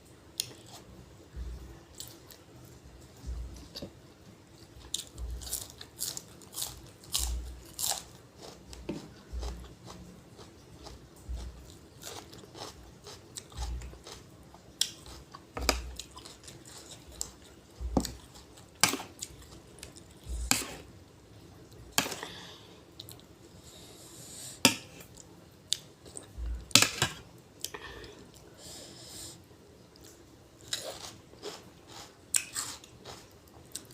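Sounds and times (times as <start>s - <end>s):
soft low thumps: 1.3s - 1.8s, 3.2s - 3.7s, 5.2s - 5.5s, 11.3s - 11.6s, 17.8s - 18.2s, 20.3s - 20.5s, 26.4s - 26.7s
person chewing crunchy vegetables: 4.8s - 20.9s, 30.0s - 33.9s.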